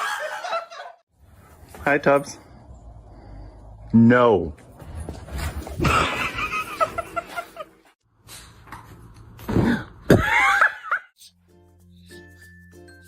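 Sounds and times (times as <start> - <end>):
light tinkling music: 11.2 - 13.0.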